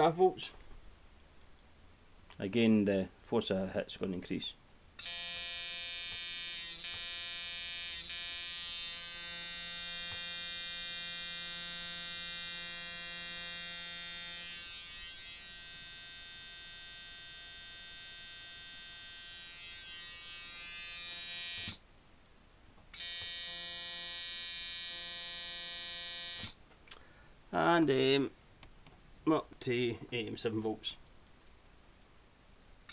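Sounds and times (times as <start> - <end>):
tattoo machine buzzing: 5.0 - 21.8, 23.0 - 26.6.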